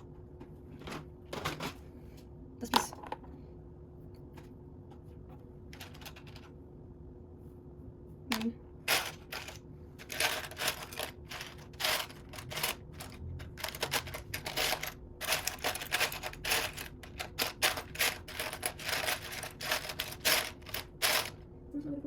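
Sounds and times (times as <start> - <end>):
plastic bricks clicking and clattering: 5.7 - 6.5, 8.3 - 21.4.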